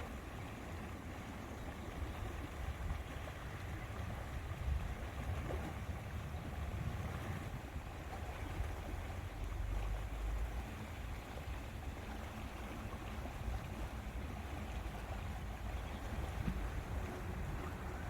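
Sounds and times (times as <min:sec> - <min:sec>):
faint water wash: 0:00.0 - 0:18.0
wind buffeting microphone: 0:02.0 - 0:09.6, 0:13.5 - 0:18.0.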